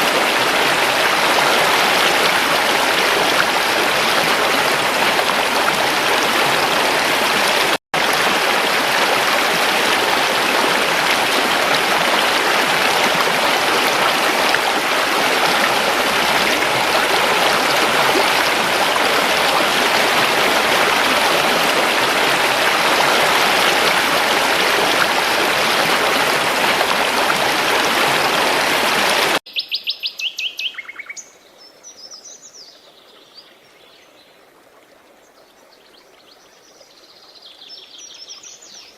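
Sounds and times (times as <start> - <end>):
creek water rushing: 0.0 - 29.4.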